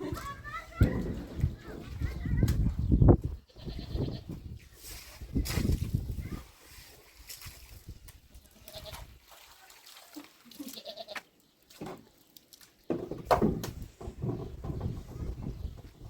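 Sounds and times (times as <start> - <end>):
livestock bleating: 3.5 - 4.3, 8.6 - 9.0, 10.6 - 11.2.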